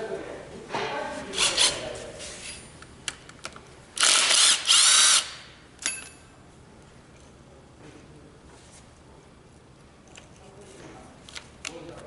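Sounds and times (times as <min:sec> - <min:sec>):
handheld power tool whining: 0:04.0 - 0:05.4.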